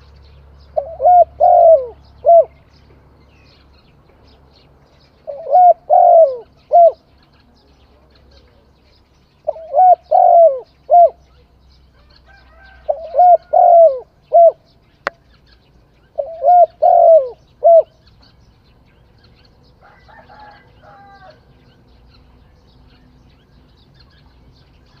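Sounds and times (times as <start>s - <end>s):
bird calling: 0.0s - 4.0s, 5.0s - 8.7s, 9.3s - 25.0s
dove cooing: 0.8s - 2.6s, 5.2s - 7.1s, 9.4s - 11.4s, 12.3s - 14.7s, 16.1s - 18.0s.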